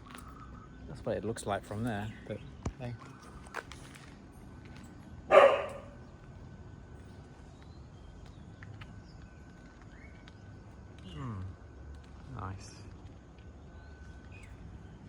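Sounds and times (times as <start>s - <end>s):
dog barking: 5.3s - 6.0s.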